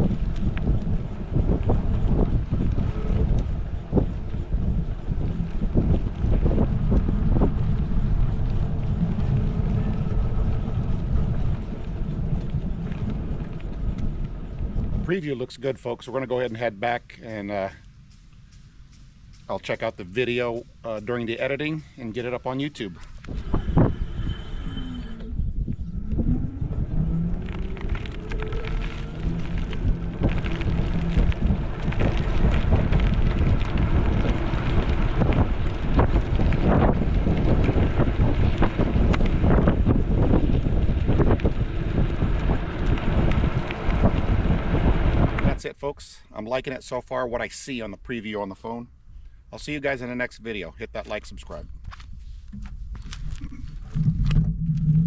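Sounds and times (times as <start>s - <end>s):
faint low hum: 0.0s - 34.9s, 52.4s - 55.0s
road and ride noise: 0.0s - 55.0s
wind rumbling against microphone: 0.0s - 55.0s.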